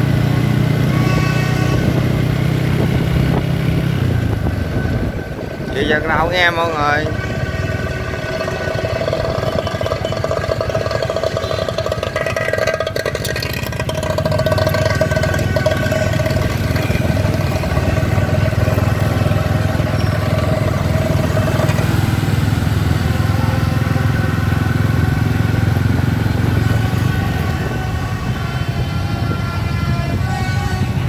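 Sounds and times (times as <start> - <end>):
many motorbike engines rumbling: 0.0 - 31.0
held higher tone: 3.7 - 25.9.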